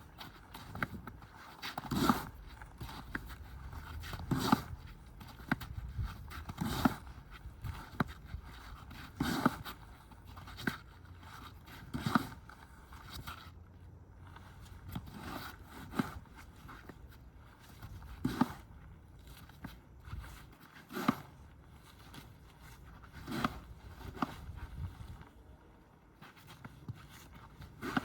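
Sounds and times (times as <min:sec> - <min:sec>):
snow shovel scraping snow: 0:00.3 - 0:05.5, 0:06.2 - 0:07.1, 0:08.7 - 0:09.8, 0:15.0 - 0:16.2, 0:17.8 - 0:18.7, 0:20.1 - 0:25.2, 0:27.0 - 0:28.0.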